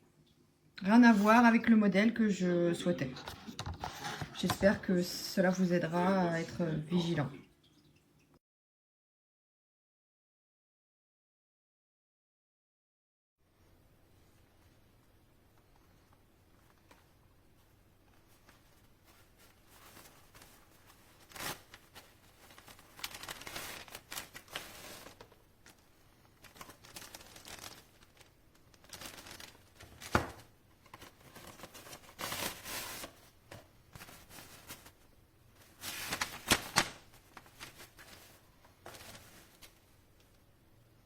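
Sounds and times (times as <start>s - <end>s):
packaging rustling and crinkling: 3.2s - 4.8s, 16.5s - 40.4s.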